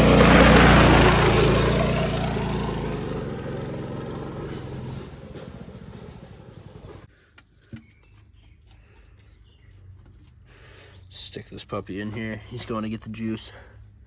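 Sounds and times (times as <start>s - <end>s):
car engine humming: 0.0s - 7.1s.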